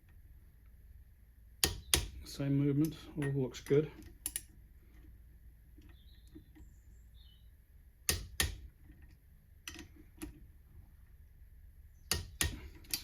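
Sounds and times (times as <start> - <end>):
faint steady hum: 0.0 - 13.0
metal tool clicks: 4.0 - 4.5.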